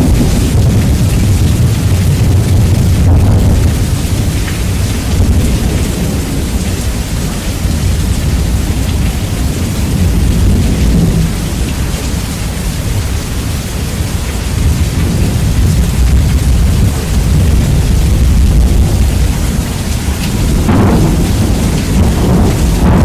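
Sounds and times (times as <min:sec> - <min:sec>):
heavy rain: 0:00.0 - 0:23.0
rumbling thunder: 0:00.0 - 0:23.0.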